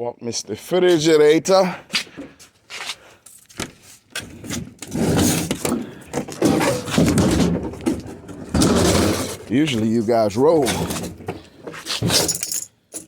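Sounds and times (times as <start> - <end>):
refrigerator scraping on ground: 4.3 - 12.4.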